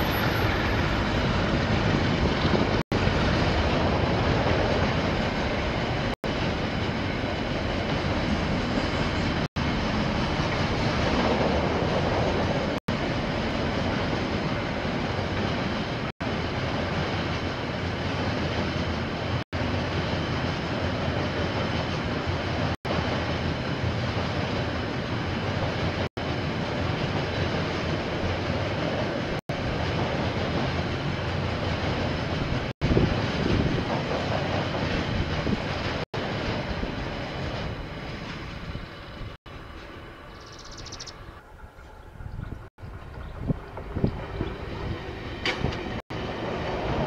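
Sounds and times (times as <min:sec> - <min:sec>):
train wheels rumbling on rails: 0:00.0 - 0:47.0
clickety-clack of wheels: 0:31.3 - 0:38.8, 0:41.8 - 0:46.0.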